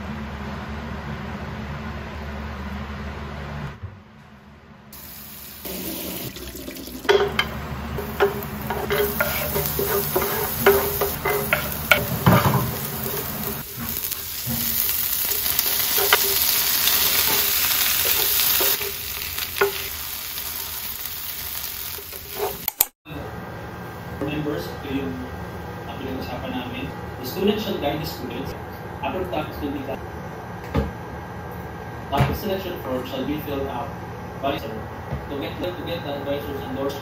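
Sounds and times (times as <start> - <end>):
food sizzling in a pan: 5.0 - 22.7
wooden spatula tapping and scraping: 7.2 - 19.0.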